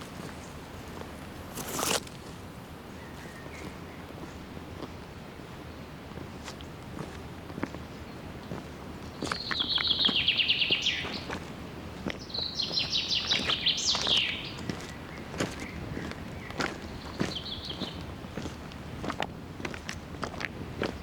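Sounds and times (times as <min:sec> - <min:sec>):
faint footsteps on trail: 0:00.0 - 0:21.0
songbird trilling: 0:09.1 - 0:11.5, 0:12.2 - 0:18.1.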